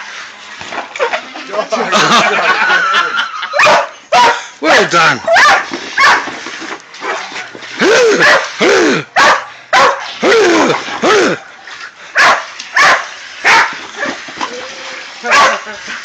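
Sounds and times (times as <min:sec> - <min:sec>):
dog barking: 0:03.6 - 0:04.5, 0:05.3 - 0:06.3, 0:08.2 - 0:08.5, 0:09.2 - 0:10.1, 0:12.2 - 0:13.8, 0:15.2 - 0:15.7.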